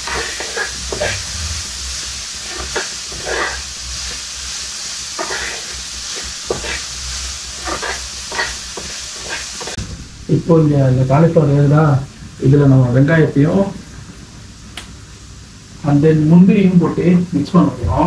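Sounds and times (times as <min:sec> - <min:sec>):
food sizzling in oil: 0:00.0 - 0:09.8.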